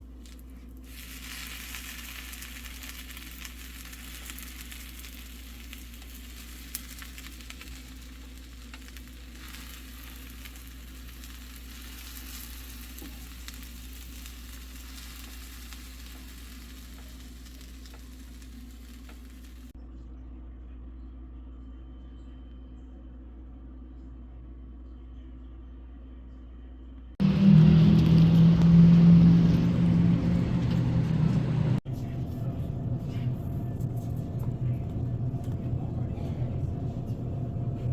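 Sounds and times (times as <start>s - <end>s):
low steady hum: 0.0s - 37.9s
food sizzling in a pan: 0.9s - 19.7s.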